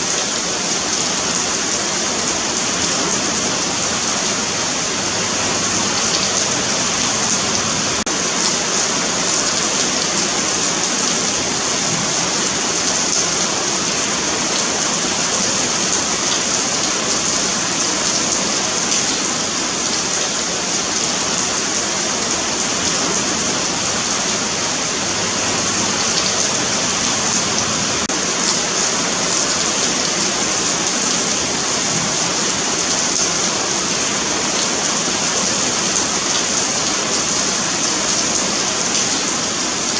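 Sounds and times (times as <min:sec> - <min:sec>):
rain on pavement: 0:00.0 - 0:39.9.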